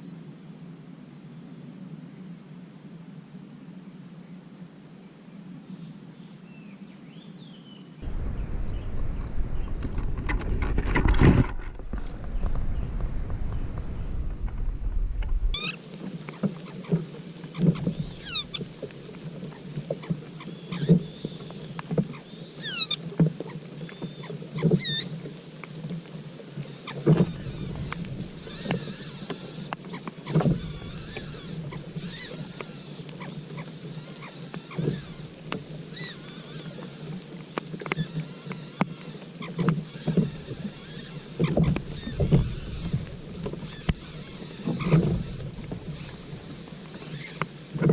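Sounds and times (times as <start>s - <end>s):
shrill bird peeping: 15.5s - 15.8s, 17.2s - 18.6s, 20.4s - 23.0s, 23.9s - 47.9s
sweeping bird whistles: 15.5s - 15.8s, 17.1s - 18.6s, 20.4s - 23.0s, 23.8s - 47.9s.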